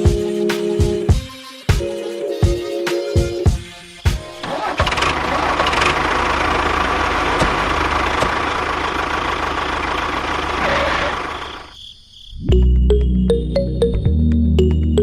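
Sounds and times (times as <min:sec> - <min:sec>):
background music: 0:00.0 - 0:04.9, 0:12.5 - 0:15.0
engine rumbling: 0:04.2 - 0:11.8.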